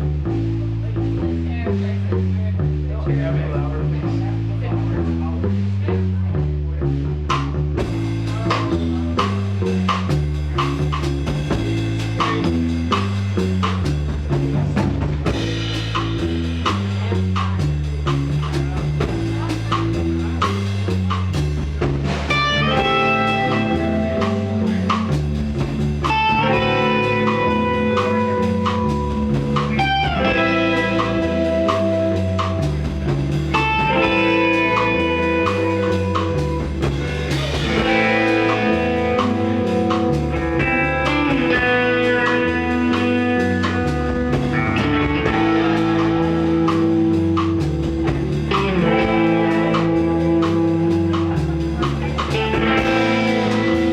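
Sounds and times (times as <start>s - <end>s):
bass guitar: 0.0s - 53.9s
drum kit beat: 7.0s - 53.9s
electric guitar lines: 22.0s - 53.9s.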